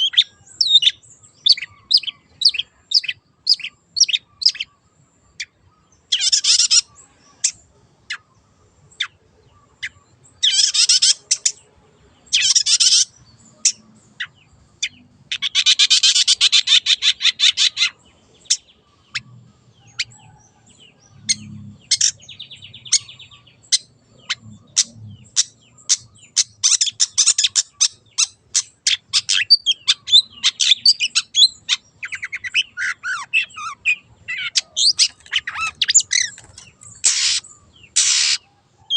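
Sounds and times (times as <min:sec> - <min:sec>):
bird sharp chips: 0:32.0 - 0:38.4
bird rattling trills: 0:34.8 - 0:38.4.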